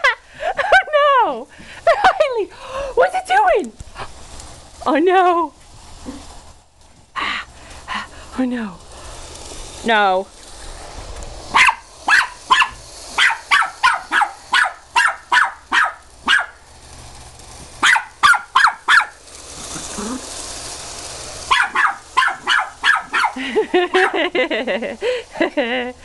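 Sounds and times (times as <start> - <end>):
puppy yapping: 11.5 - 16.6, 17.8 - 19.2, 21.5 - 23.4.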